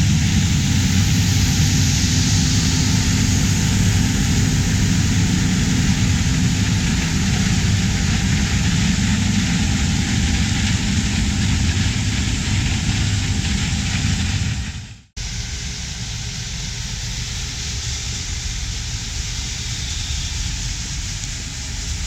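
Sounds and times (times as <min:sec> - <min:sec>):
diesel machinery engine drone: 0:00.0 - 0:22.0.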